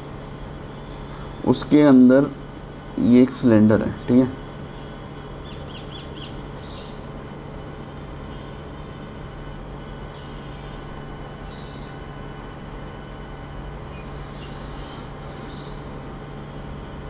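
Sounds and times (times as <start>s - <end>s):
low electrical hum: 0.0s - 17.0s
small birds chirping: 3.8s - 7.1s, 10.0s - 12.1s, 13.8s - 15.9s.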